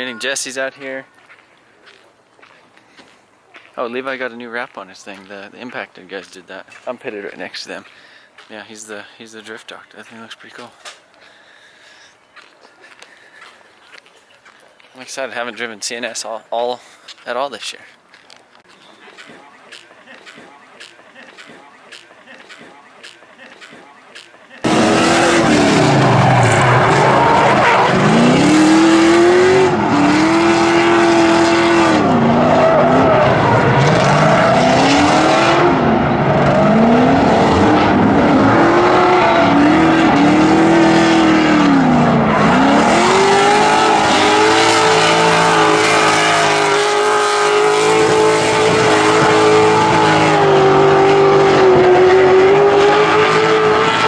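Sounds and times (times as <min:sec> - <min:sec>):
tire noise: 0:24.2 - 0:54.0
car engine revving hard: 0:24.6 - 0:54.0.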